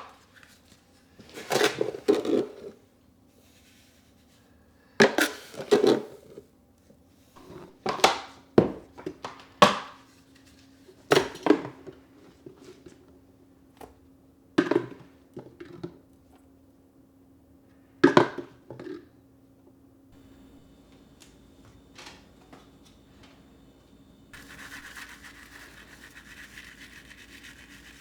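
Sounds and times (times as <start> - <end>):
faint steady hum: 10.1 - 28.0.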